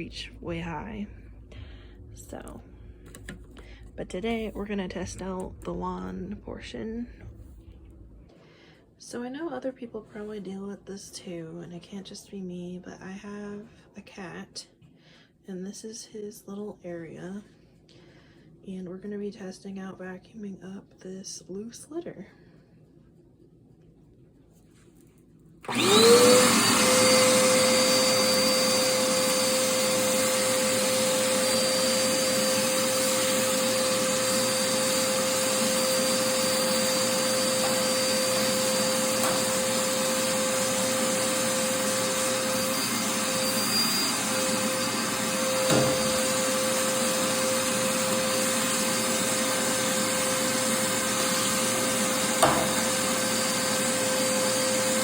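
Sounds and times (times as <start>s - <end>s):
upright vacuum motor whine: 25.6s - 55.0s.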